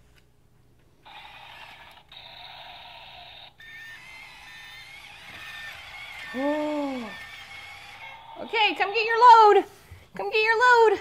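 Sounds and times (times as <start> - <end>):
toy electronic sound effects: 1.1 - 9.2.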